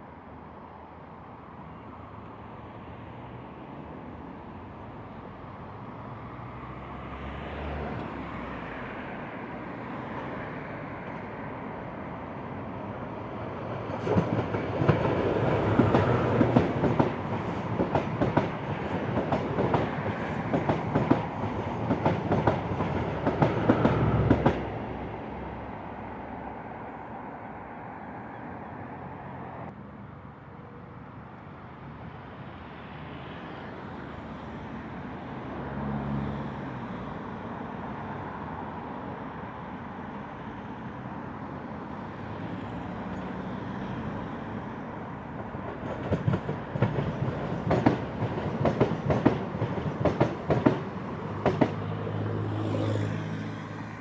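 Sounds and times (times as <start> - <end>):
faint rail traffic rumble: 0.0 - 54.0
train wheels clattering over joints: 45.7 - 51.8.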